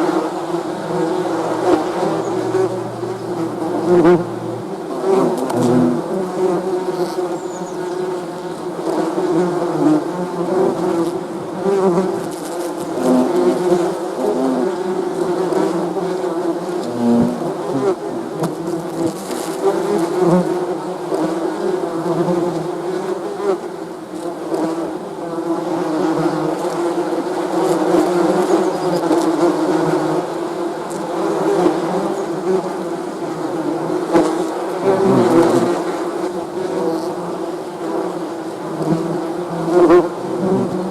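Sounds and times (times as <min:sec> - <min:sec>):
bees buzzing: 0:00.0 - 0:08.2, 0:31.6 - 0:40.9.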